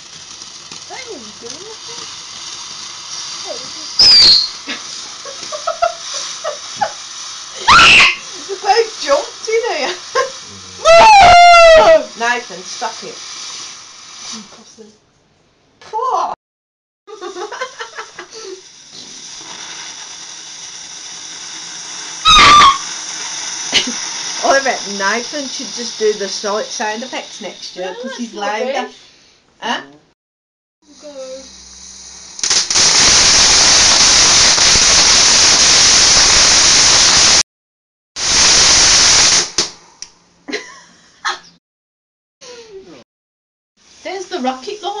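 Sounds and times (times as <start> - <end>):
firework hissing: 0.0 - 14.9, 17.1 - 29.3, 30.8 - 37.4, 38.2 - 40.2, 43.8 - 45.0
faint pops and squeals: 4.0 - 4.7, 22.2 - 22.9
loud high-pitched shout: 7.6 - 8.2, 10.6 - 12.1, 22.3 - 22.8.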